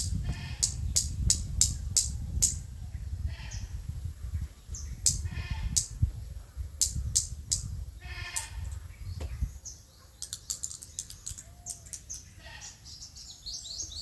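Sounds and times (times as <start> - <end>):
bleat-like calls: 8.0 - 8.6
high animal chirps: 10.2 - 12.7.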